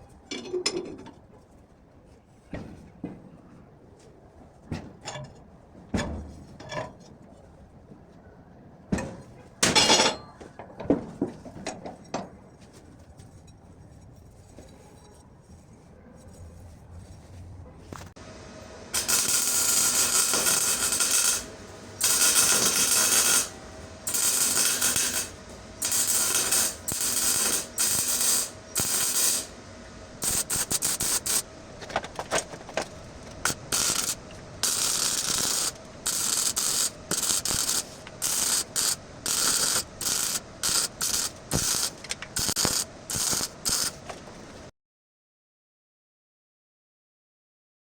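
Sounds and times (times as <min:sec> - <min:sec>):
loud workshop tool bursts: 0:18.9 - 0:29.6, 0:30.2 - 0:31.4, 0:33.4 - 0:44.0.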